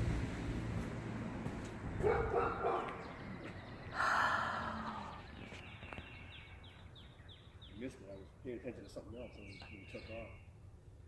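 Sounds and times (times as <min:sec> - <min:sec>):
dog barking: 0:02.0 - 0:03.1
faint bird chirps: 0:03.1 - 0:10.6.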